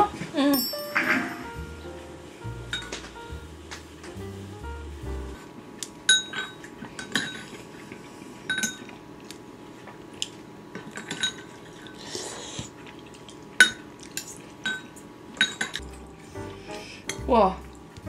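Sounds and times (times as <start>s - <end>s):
cutlery clinking against dishes: 0.6s - 1.5s, 8.5s - 8.9s, 10.9s - 11.5s.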